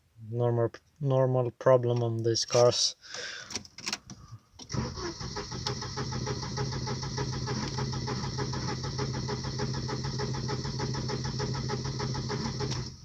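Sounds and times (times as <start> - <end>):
starter motor cranking engine: 4.6 - 13.0.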